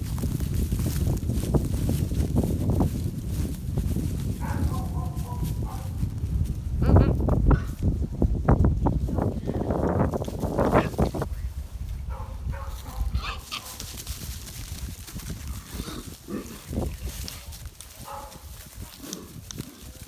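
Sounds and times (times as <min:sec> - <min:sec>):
hog grunting: 0:15.7 - 0:16.8.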